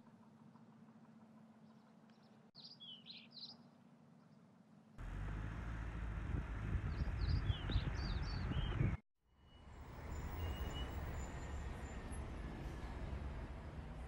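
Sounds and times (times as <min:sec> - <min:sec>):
small birds chirping: 0:01.6 - 0:04.4, 0:06.8 - 0:09.0.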